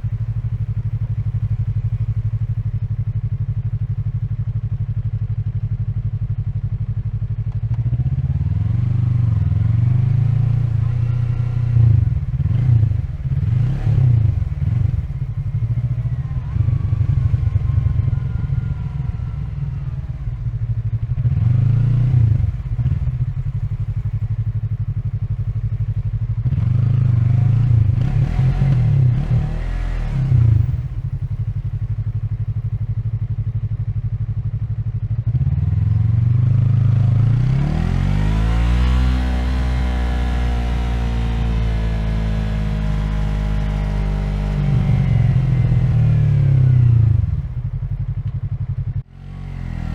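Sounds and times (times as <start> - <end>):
motorcycle engine accelerating: 0.0 - 49.9.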